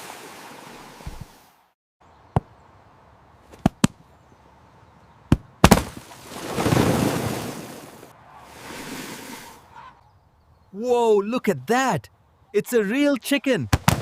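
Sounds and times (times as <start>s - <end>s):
sharp cracks: 5.3s - 6.9s.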